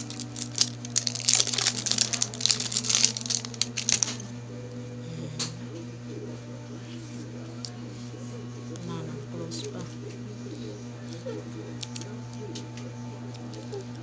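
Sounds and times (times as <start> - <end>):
packaging crinkling: 0.0 - 4.4, 11.1 - 12.6
low hum: 0.0 - 14.0.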